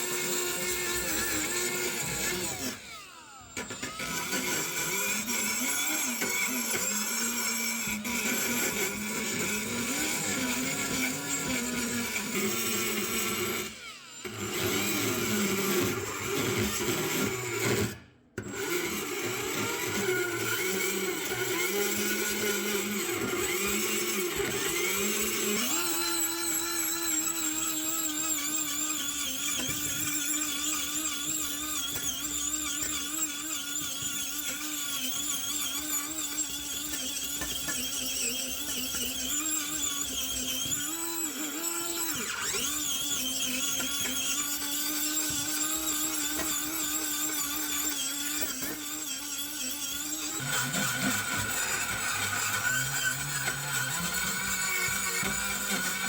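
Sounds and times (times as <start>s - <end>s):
power tool motor whining: 0.0s - 56.0s.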